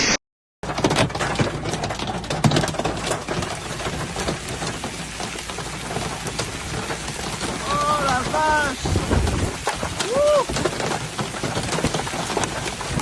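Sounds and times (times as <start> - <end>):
raindrops ticking on hard surfaces: 0.7 - 13.0
heavy rain hiss: 4.2 - 10.7.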